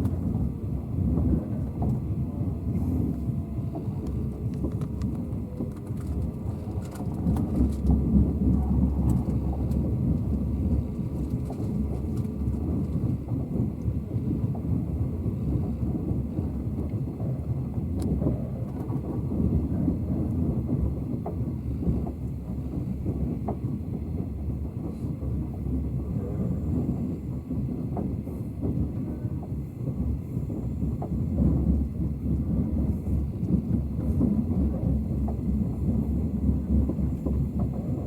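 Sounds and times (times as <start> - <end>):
train rumbling on track: 0.0 - 38.0
light clicks and rattles: 4.0 - 10.3.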